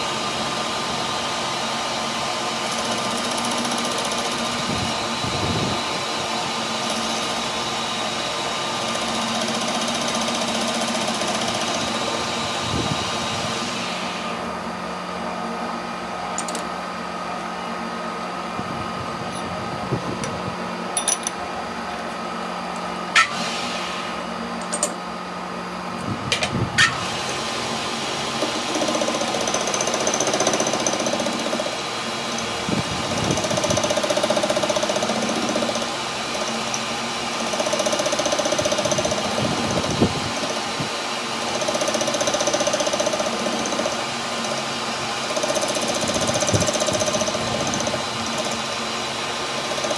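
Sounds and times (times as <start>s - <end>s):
sharp metallic clicks: 16.4s - 16.7s.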